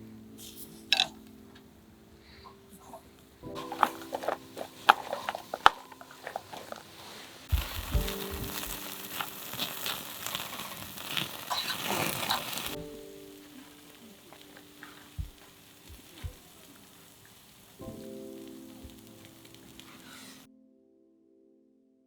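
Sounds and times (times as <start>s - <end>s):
soft background music: 0.0s - 22.0s
packaging crinkling and clicks: 3.6s - 12.8s
food sizzling on hot surface: 3.6s - 20.5s.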